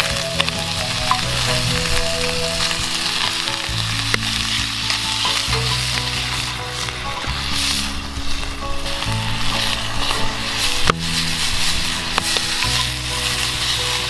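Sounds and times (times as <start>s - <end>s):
food sizzling in a pan: 0.0s - 14.0s
soft background music: 0.0s - 14.0s.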